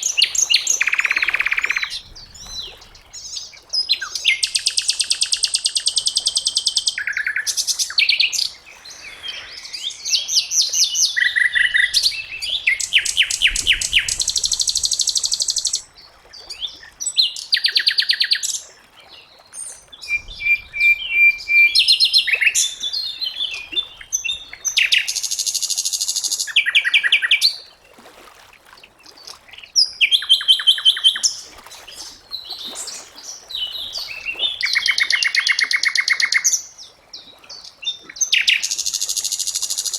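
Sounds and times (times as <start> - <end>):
flycatcher singing trills: 0.1 - 2.8.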